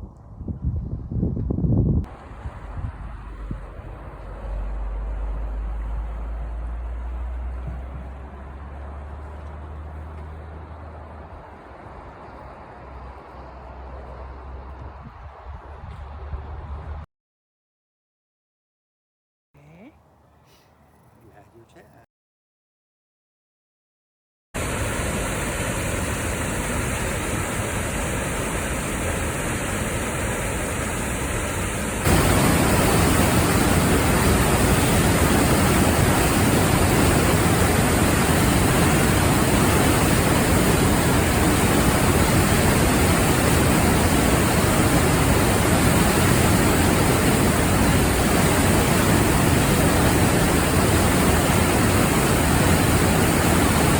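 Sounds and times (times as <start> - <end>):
rushing water: 2.1 - 14.7, 24.6 - 53.9.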